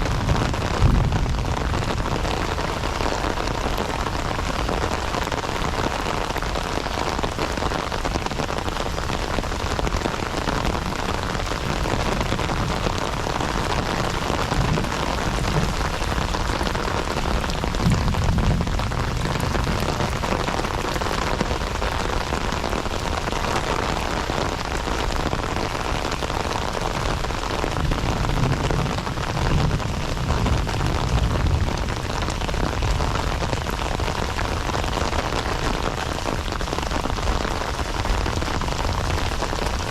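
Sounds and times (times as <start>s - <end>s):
heavy rain hissing: 0.0s - 39.9s
low rumbling: 12.4s - 20.8s.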